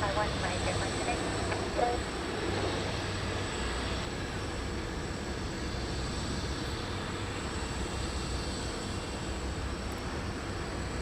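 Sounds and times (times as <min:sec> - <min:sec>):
high engine whine: 0:00.0 - 0:11.0
jet engines rumbling: 0:00.0 - 0:11.0.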